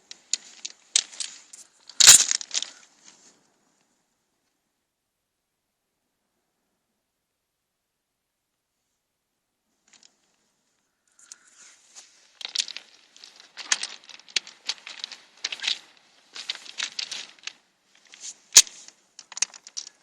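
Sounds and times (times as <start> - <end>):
rustling and crackling vegetation: 0.0 - 4.6, 9.7 - 20.0.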